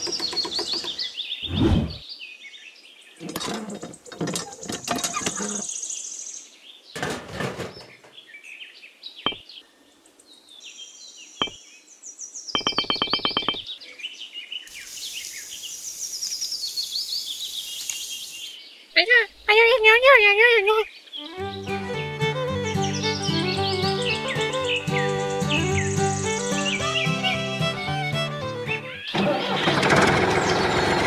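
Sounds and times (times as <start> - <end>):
birds chirping: 0.0 - 6.8, 7.6 - 31.0.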